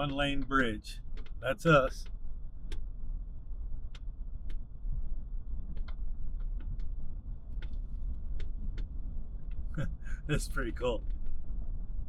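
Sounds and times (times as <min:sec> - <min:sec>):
sharp clicks and rattles: 0:00.0 - 0:02.9, 0:05.7 - 0:11.5
road and engine rumble: 0:00.0 - 0:12.0.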